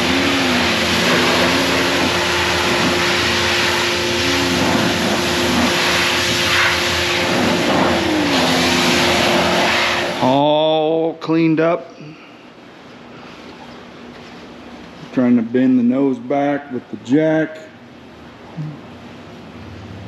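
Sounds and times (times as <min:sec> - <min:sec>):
water spray hissing: 0:00.0 - 0:10.2
pressure washer motor hum: 0:00.0 - 0:10.8.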